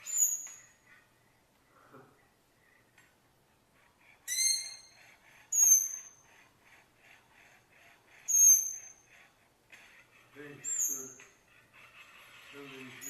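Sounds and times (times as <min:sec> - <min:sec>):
sharp high-pitched bird calls: 0:04.3 - 0:06.2.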